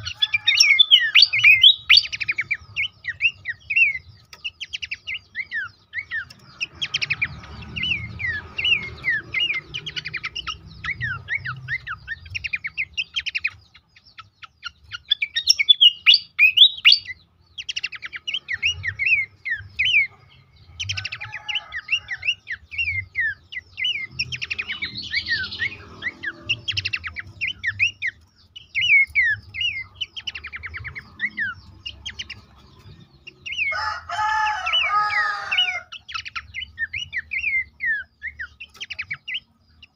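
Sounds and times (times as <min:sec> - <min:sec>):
harsh bird call: 0:00.0 - 0:04.0, 0:15.1 - 0:17.2
bird song chirps and trills: 0:00.0 - 0:39.9.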